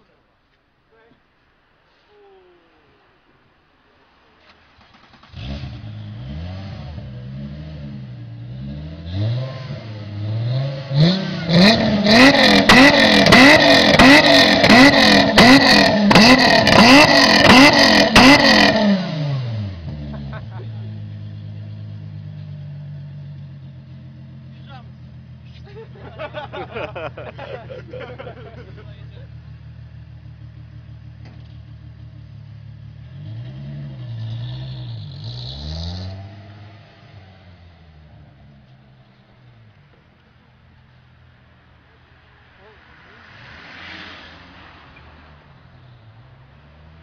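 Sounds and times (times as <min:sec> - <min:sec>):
exhaust cracks: 0:04.3 - 0:07.3, 0:10.9 - 0:34.1
car engine revving: 0:04.6 - 0:47.0.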